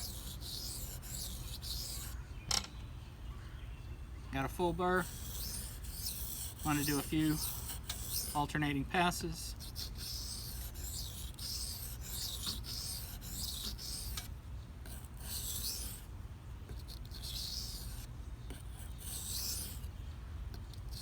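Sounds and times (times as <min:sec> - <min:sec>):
knife scraping on whetstone: 0:00.0 - 0:02.2, 0:05.0 - 0:08.6, 0:09.6 - 0:16.1, 0:16.7 - 0:19.8.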